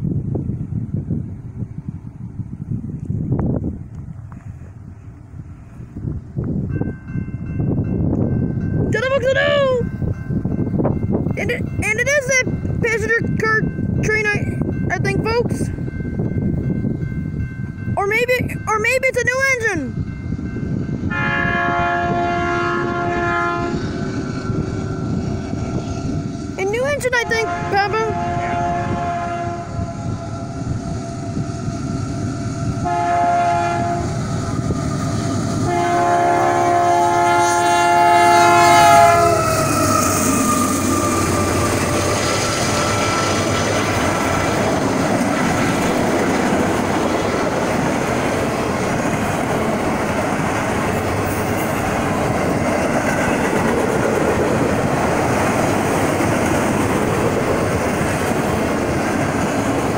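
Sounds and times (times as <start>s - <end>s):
locomotive air horn: 21.1s - 24.1s, 27.2s - 41.6s
freight cars rumbling and clattering: 40.2s - 59.9s.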